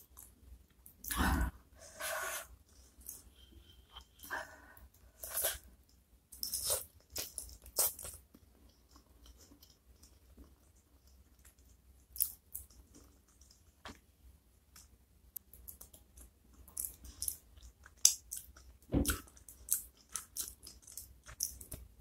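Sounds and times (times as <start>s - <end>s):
wet chewing: 15.7s - 21.9s.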